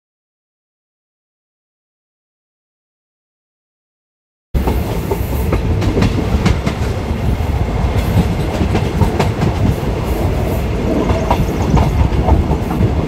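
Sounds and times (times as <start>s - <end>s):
train rumbling on rails: 4.6s - 13.0s
wheels clacking over rail joints: 4.6s - 13.0s.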